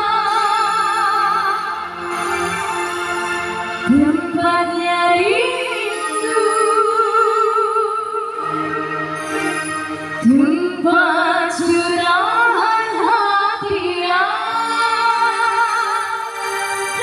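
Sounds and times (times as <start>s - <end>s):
person singing with vibrato: 0.0s - 17.0s.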